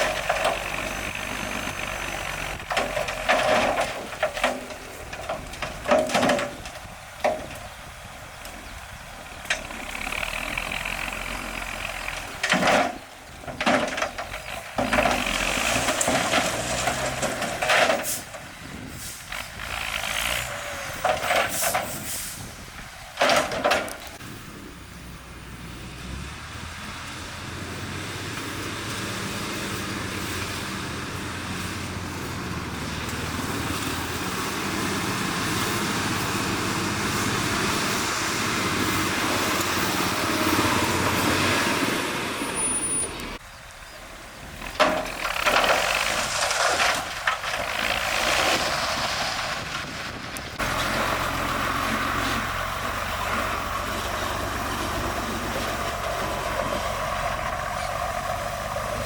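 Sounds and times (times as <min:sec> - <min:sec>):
machinery engine running: 0:00.0 - 0:05.9, 0:23.8 - 0:59.0.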